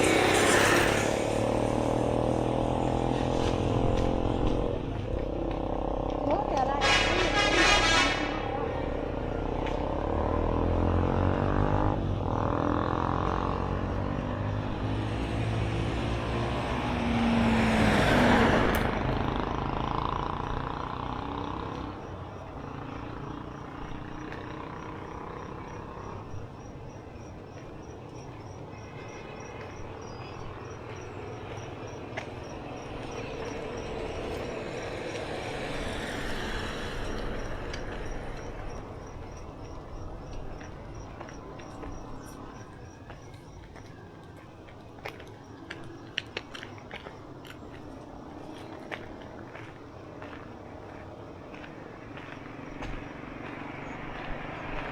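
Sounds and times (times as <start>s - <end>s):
motor vehicle passing close: 0.0s - 43.8s, 45.7s - 54.9s
street ambience: 0.0s - 54.9s.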